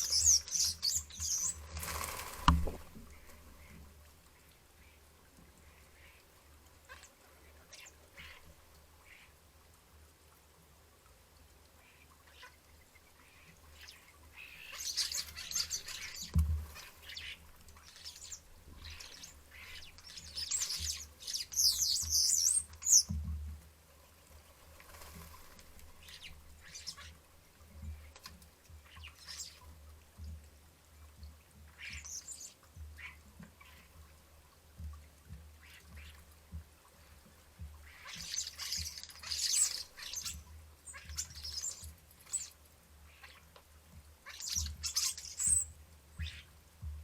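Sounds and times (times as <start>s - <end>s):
bird chirps: 0.0s - 1.7s, 17.0s - 23.1s, 38.0s - 42.5s, 44.3s - 46.5s
starlings chattering and screeching: 0.0s - 2.4s, 14.6s - 17.3s, 17.9s - 23.1s, 38.0s - 42.5s, 44.3s - 45.6s.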